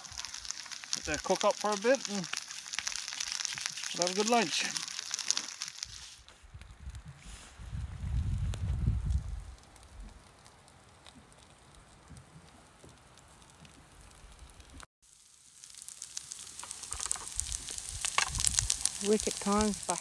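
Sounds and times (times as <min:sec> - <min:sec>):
food sizzling in oil: 0:00.0 - 0:06.3, 0:15.0 - 0:20.0.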